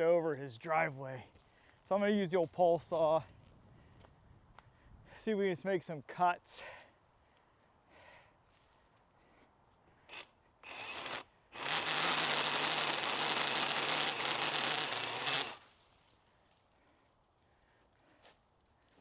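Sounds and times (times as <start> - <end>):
pole saw cutting branch: 10.1 - 15.7.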